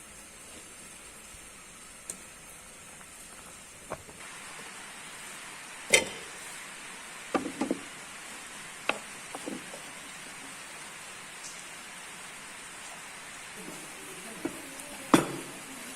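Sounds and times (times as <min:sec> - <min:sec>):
rain hiss: 0:00.0 - 0:15.9
cookware knocks: 0:14.4 - 0:15.5.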